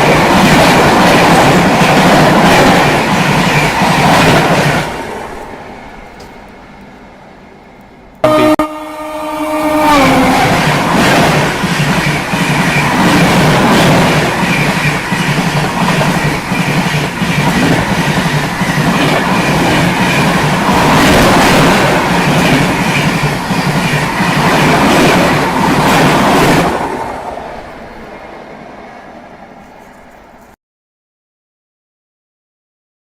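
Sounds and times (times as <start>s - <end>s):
train wheels clattering: 10.3s - 28.2s.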